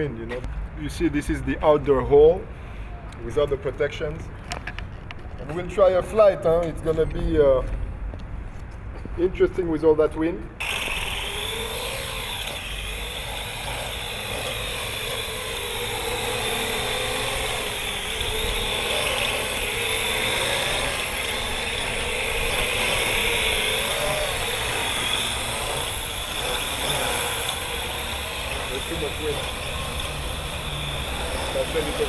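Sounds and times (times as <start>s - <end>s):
drone propellers whirring: 10.6s - 32.0s.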